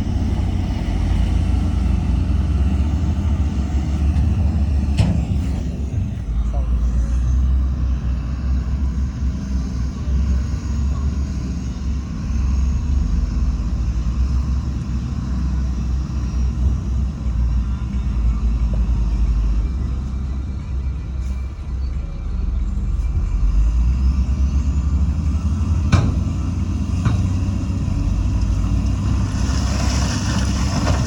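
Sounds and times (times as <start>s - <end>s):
heavy diesel machinery rumbling: 0.0s - 31.0s.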